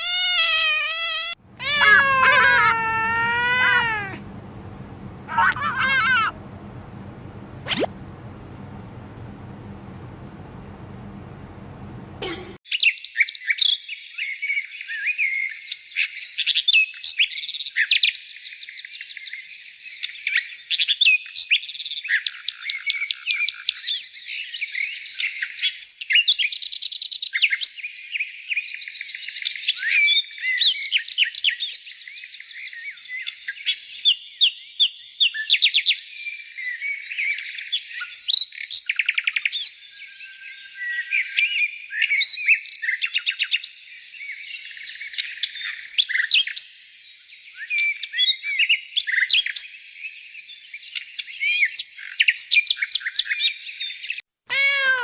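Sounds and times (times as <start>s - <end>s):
bird chirping and twittering: 5.3s - 6.3s, 7.6s - 7.9s.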